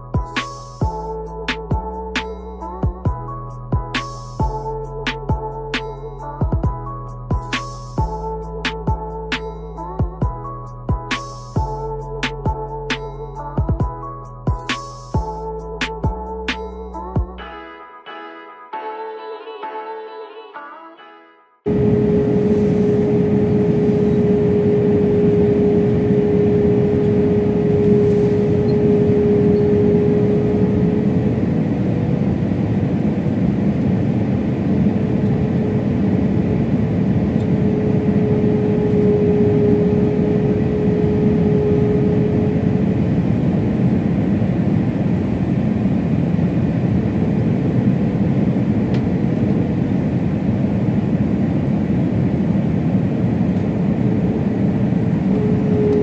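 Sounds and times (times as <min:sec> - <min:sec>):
jet engine and airflow in cabin: 0:21.7 - 0:56.0
steady hum: 0:21.7 - 0:56.0.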